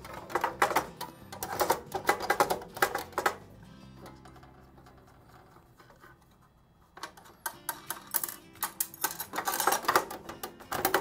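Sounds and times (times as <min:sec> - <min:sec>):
metal panel and screws clinking: 0:07.0 - 0:11.0.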